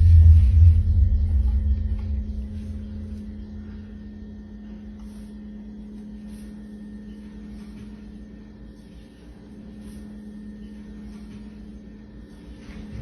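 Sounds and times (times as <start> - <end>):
deep low rumble: 0.0 - 5.1
steady low hum: 0.0 - 13.0.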